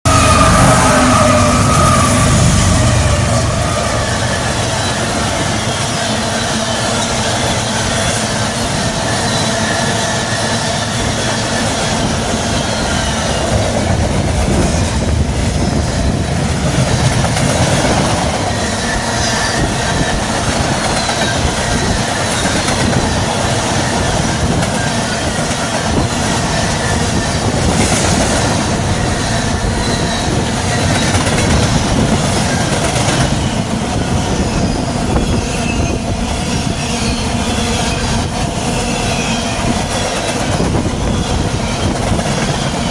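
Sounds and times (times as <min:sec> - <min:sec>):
train cars rolling past: 0:00.1 - 0:42.9
faint wheel squeal: 0:34.0 - 0:42.9.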